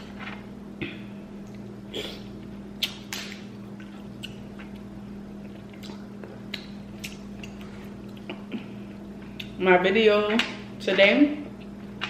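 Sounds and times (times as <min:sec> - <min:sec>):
steady low hum: 0:00.0 - 0:12.0
wet chewing: 0:02.8 - 0:08.5
mouth smacks: 0:05.5 - 0:08.6.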